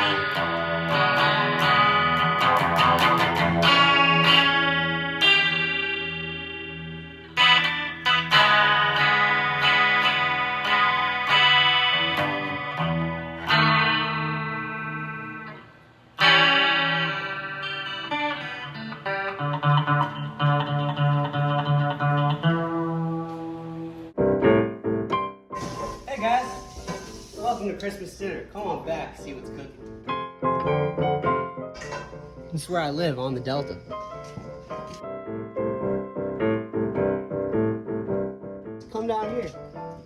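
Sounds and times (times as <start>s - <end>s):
guitar chords ringing: 0.0s - 26.2s
picked guitar notes: 0.0s - 26.9s.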